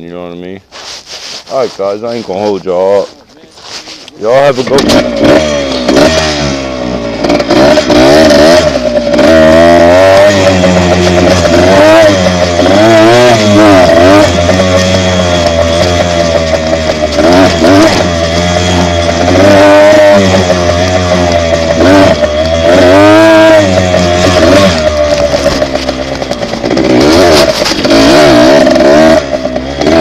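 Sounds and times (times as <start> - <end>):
dirt bike engine revving: 3.8 - 30.0.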